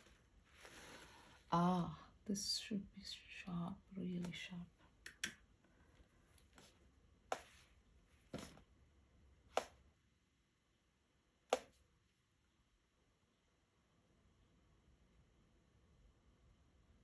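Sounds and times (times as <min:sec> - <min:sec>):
faint taps and scrapes of painting tools: 0:06.0 - 0:07.7.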